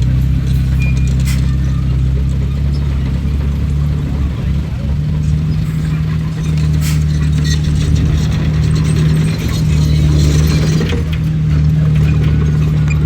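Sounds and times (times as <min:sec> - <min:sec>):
bulldozer diesel engine running: 0:00.0 - 0:13.0
steel tracks clanking and squeaking: 0:00.0 - 0:13.0.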